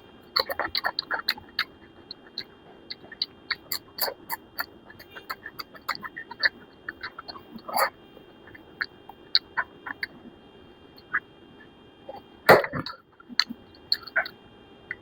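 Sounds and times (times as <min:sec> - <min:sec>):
person chewing and lip smacking: 0:00.2 - 0:10.3, 0:11.0 - 0:11.2, 0:12.1 - 0:15.0.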